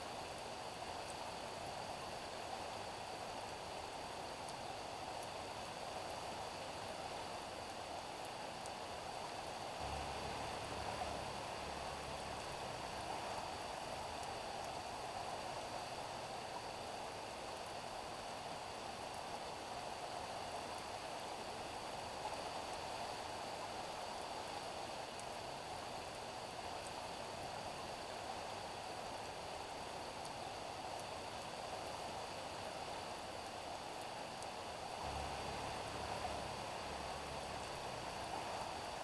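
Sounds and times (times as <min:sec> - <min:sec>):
steady rain on a street: 0:00.0 - 0:39.0.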